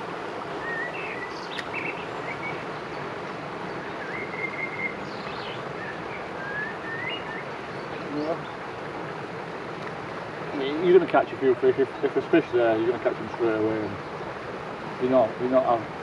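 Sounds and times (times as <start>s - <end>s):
steady background hiss: 0.0s - 16.0s
small birds chirping and whistling: 0.6s - 3.0s, 3.6s - 8.6s.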